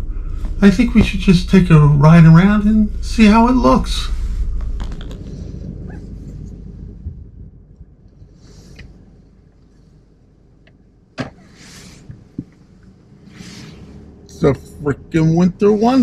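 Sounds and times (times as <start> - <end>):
car engine and road rumble: 0.0 - 16.0
brief swishing sounds: 13.3 - 14.0.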